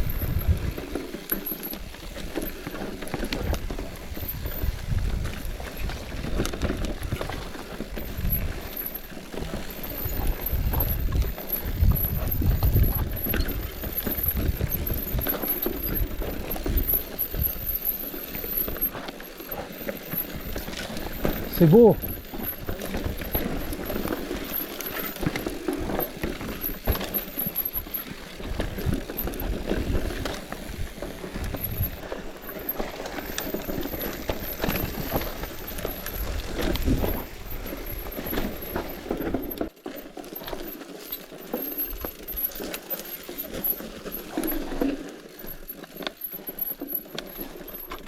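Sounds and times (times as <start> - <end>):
bike rattling: 0.0 - 48.0
bike tyres over stones: 0.0 - 48.0.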